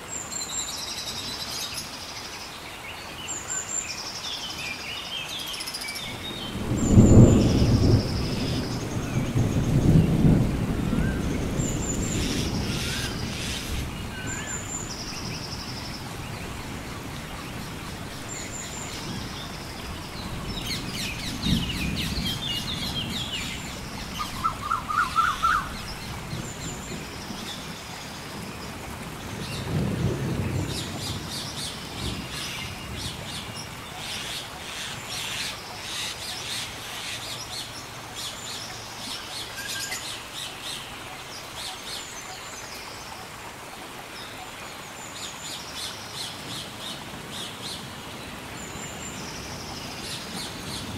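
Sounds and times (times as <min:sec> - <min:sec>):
steady rain: 0:00.0 - 0:50.9
low rolls of thunder: 0:06.0 - 0:33.8
birds chirping: 0:11.2 - 0:28.5.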